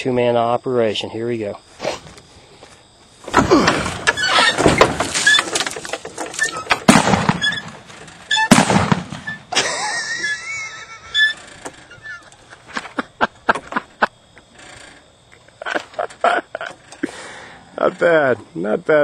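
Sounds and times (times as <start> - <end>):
trebuchet arm rushing and clattering: 3.2 - 9.5
sharp bangs: 3.2 - 10.3.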